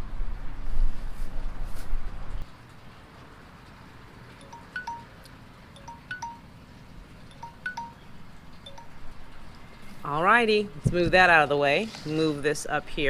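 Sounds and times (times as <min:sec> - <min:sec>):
wind chime ringing: 0:04.4 - 0:05.2, 0:05.8 - 0:06.6, 0:07.2 - 0:09.2.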